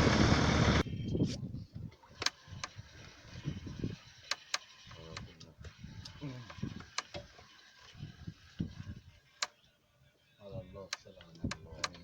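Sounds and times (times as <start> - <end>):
boat engine running: 0.0 - 0.8.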